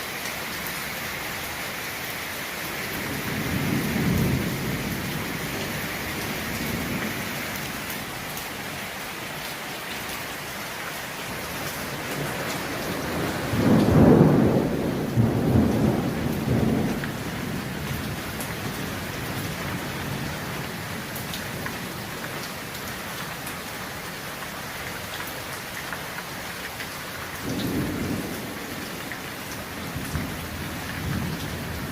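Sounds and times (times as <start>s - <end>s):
heavy rain falling: 0.0s - 31.9s
thunder rolling: 12.2s - 18.3s, 27.4s - 29.1s.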